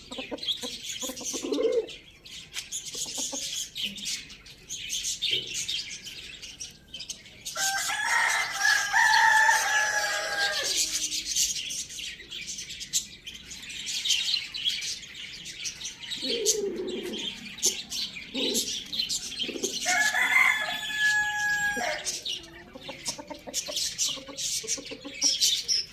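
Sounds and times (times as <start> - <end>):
hens clucking: 0.0 - 2.0, 16.2 - 25.9
small birds chirping: 0.0 - 25.9
rooster crowing: 7.6 - 11.0, 19.8 - 22.2.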